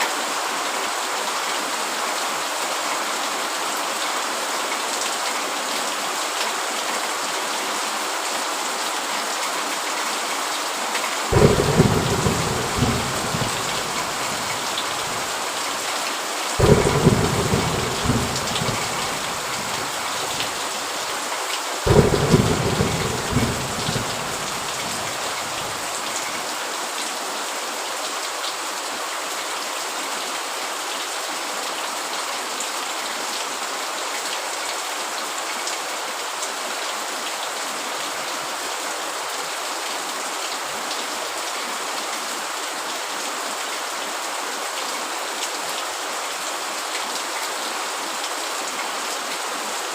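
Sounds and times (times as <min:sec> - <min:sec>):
heavy rain falling: 0:00.1 - 0:49.9
thunder claps rumbling: 0:11.3 - 0:15.4, 0:16.6 - 0:20.6, 0:21.9 - 0:26.0.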